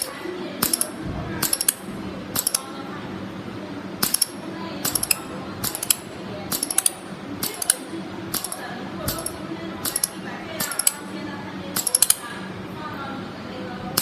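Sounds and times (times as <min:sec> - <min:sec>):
laser welder metallic snaps: 0:04.0 - 0:11.0.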